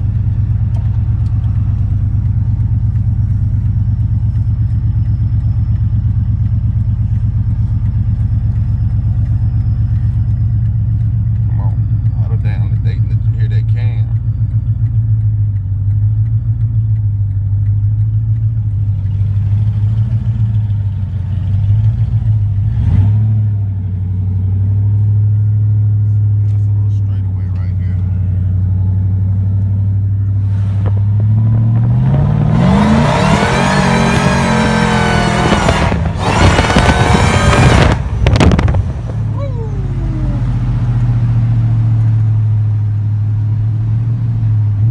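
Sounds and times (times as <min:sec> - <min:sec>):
supercharger whine: 0:00.0 - 0:44.9
truck engine deep rumble: 0:00.0 - 0:44.9
supercharged engine revving: 0:21.7 - 0:23.6, 0:30.2 - 0:44.9
engine backfire cracks: 0:30.4 - 0:39.4.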